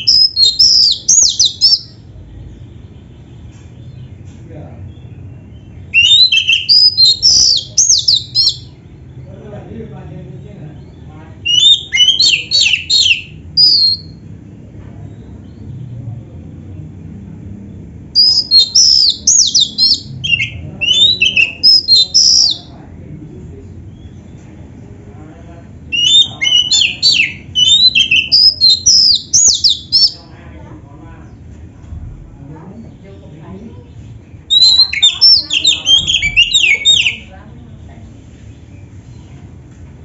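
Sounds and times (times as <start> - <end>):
bird singing high sweeping notes: 18.2 - 22.7, 26.0 - 30.3.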